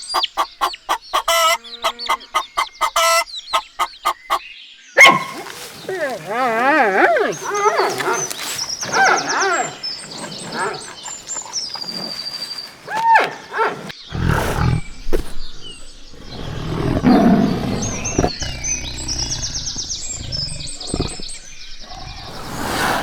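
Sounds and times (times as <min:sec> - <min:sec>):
small birds chirping: 0:00.0 - 0:23.0
animal grunting or roaring: 0:05.0 - 0:23.0.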